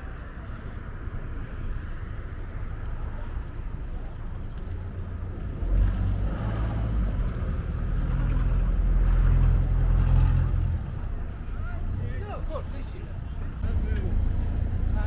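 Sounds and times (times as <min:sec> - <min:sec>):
boat engine droning: 0:05.8 - 0:11.1.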